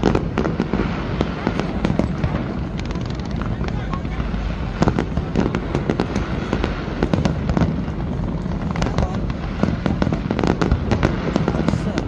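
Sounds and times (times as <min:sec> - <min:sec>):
fireworks crackling bangs: 0:00.0 - 0:12.0
fireworks rumble: 0:00.0 - 0:12.0.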